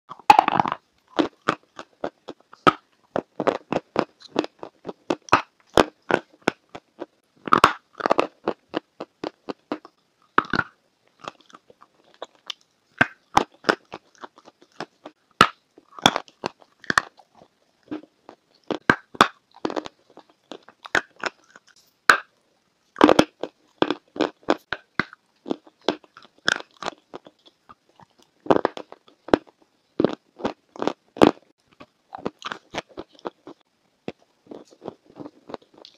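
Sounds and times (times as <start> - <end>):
chewing cheesecake crackles: 0.2 - 22.3, 23.0 - 35.9.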